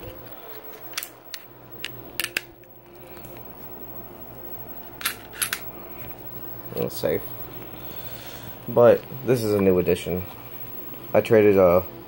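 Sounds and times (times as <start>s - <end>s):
metallic pistol clicks: 5.0s - 5.7s.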